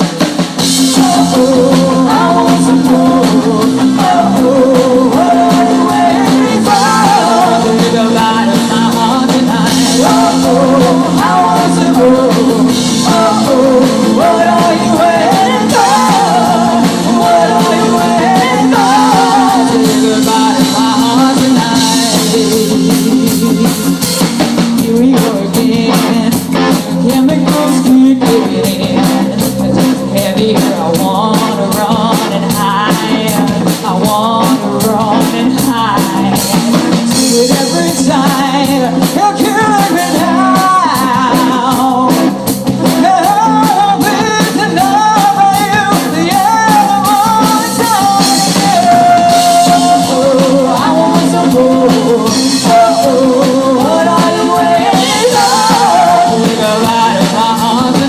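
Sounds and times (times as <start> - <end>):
drum-kit beat: 0.0 - 58.0
rock band playing: 0.0 - 58.0
wavering vocal melody: 0.9 - 23.9, 44.8 - 58.0.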